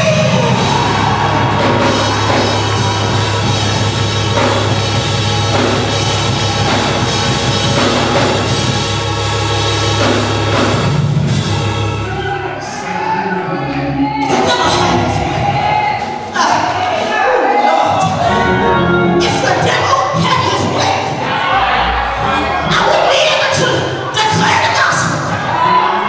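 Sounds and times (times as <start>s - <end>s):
drum kit: 0.0s - 12.2s
sustained bass line: 0.0s - 12.4s, 18.0s - 20.8s.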